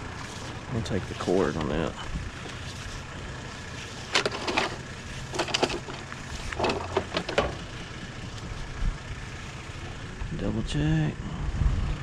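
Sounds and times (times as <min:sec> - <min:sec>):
vehicle engine idling: 0:00.0 - 0:12.0
junk clattering and cracking: 0:03.9 - 0:08.5.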